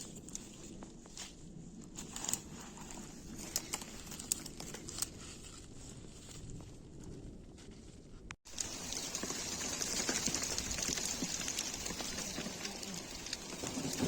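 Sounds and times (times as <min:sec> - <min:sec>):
dense rain pattering: 0:08.5 - 0:14.0.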